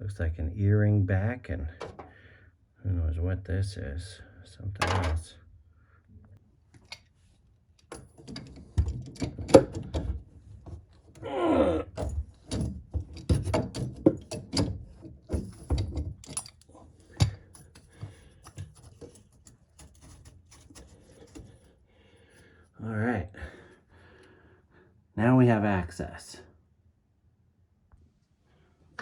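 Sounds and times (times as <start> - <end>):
drain parts and tools clattering: 4.8 - 5.2, 7.9 - 11.2, 11.8 - 21.6.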